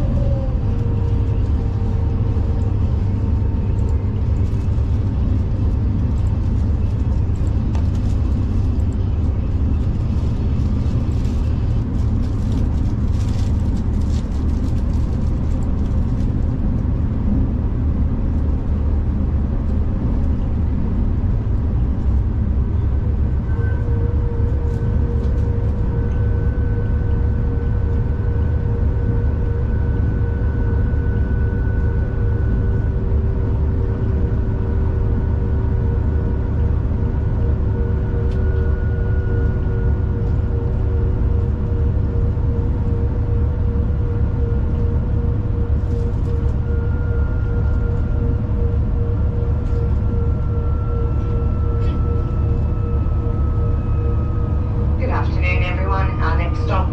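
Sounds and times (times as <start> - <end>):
steady whine: 0.0 - 56.9
train rumbling: 0.0 - 56.9.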